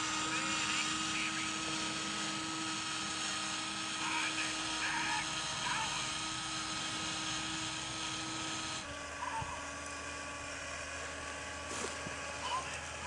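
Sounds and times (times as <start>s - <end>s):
toy motor and gears whirring: 0.0s - 10.2s.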